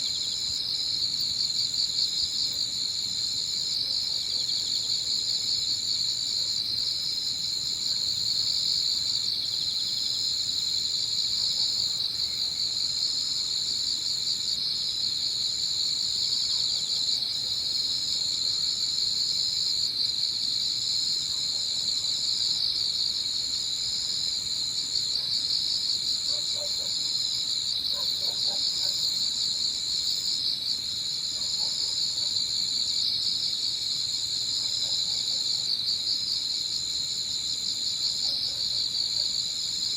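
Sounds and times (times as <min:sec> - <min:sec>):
crickets chirring: 0:00.0 - 0:21.6.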